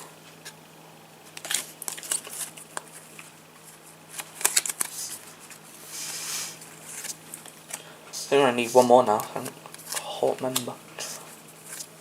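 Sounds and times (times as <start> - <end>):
faint steady hum: 0.0 - 12.0
trading cards clicking and rustling: 1.3 - 5.6, 8.6 - 11.9.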